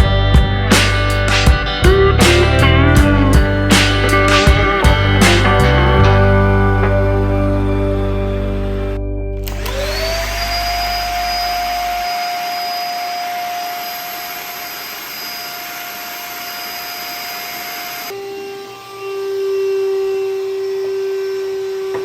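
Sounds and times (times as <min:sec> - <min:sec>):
background music: 0:00.0 - 0:10.2
vacuum motor whine: 0:04.4 - 0:22.0.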